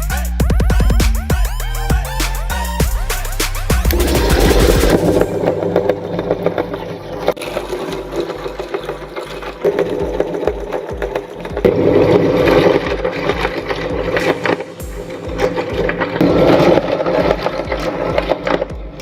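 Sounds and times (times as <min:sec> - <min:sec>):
meat grinder motor running: 0:03.9 - 0:19.0.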